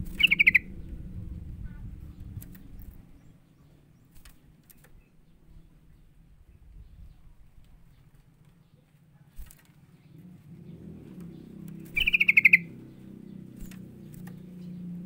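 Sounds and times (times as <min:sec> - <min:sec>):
low steady hum: 0:00.0 - 0:15.0
bird chattering call: 0:00.2 - 0:00.7, 0:11.9 - 0:13.0.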